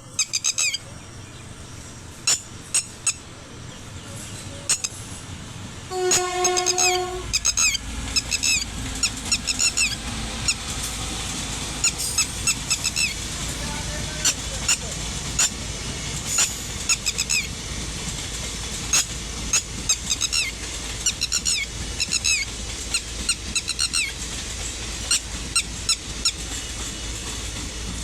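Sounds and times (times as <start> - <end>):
small birds chirping: 0.0 - 5.1
low rumble of train: 0.0 - 28.0
train horn blast: 5.8 - 7.8.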